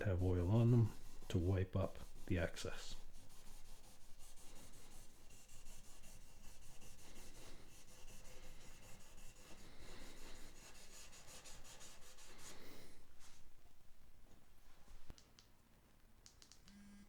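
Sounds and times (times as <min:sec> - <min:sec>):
cloth rag rubbing fretboard: 0:00.0 - 0:13.6.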